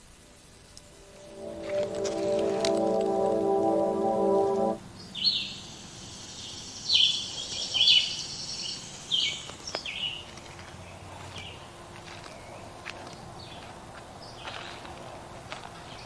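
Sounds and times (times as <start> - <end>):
background music: 0.9 - 4.8.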